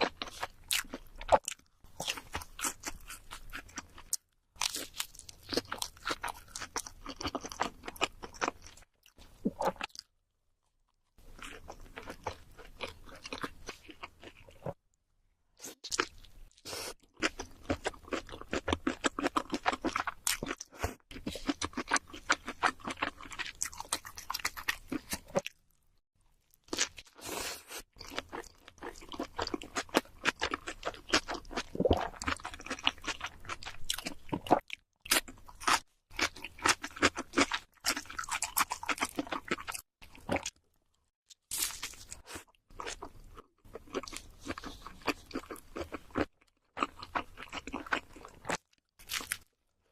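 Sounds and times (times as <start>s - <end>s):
chewing pizza crust crunching: 15.9s - 25.6s, 28.0s - 40.6s, 41.3s - 49.5s.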